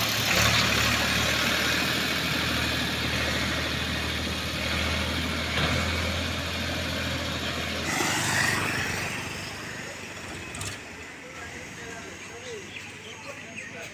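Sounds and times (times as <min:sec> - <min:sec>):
diesel engine idling: 0:00.0 - 0:13.9
loud noisy burst: 0:07.8 - 0:10.4.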